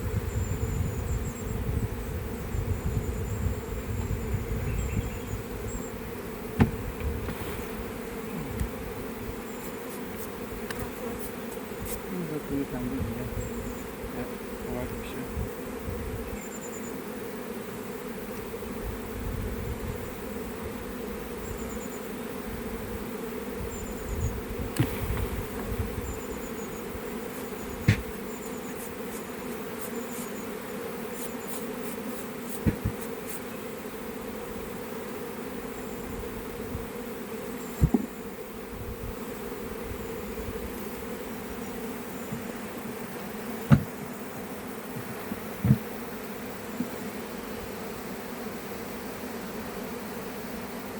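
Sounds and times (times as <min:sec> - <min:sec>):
honeybees buzzing: 0:00.0 - 0:50.9
sharp knocks: 0:06.6 - 0:07.1, 0:27.8 - 0:28.1, 0:32.6 - 0:33.1, 0:37.8 - 0:38.1, 0:43.7 - 0:44.0, 0:45.0 - 0:45.9.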